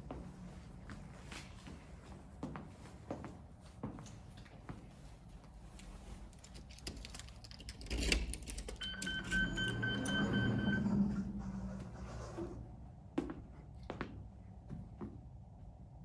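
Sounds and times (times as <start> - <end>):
low mechanical hum: 0.0 - 16.0
steady electronic beep: 8.8 - 11.6.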